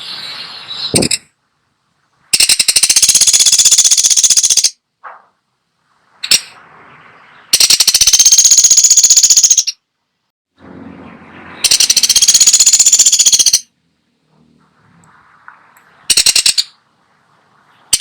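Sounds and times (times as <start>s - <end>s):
woodpecker calls and chatter: 0.3s - 1.3s, 2.3s - 4.8s, 7.2s - 9.8s, 11.6s - 13.7s, 15.1s - 16.8s
woodpecker rattling: 0.9s - 1.3s, 2.3s - 4.8s, 7.5s - 9.8s, 11.6s - 13.7s, 16.0s - 16.8s.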